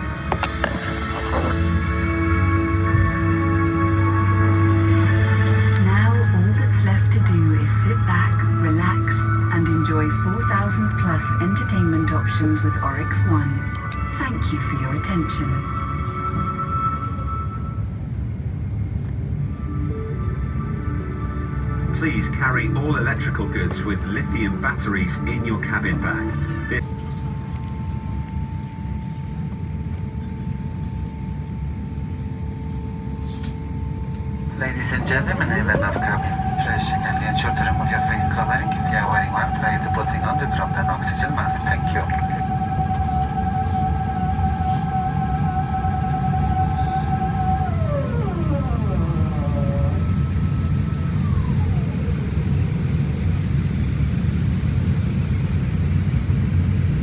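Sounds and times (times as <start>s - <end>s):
thin steady hum: 0.0s - 17.8s, 34.2s - 57.0s
airplane cabin rumble: 0.0s - 57.0s.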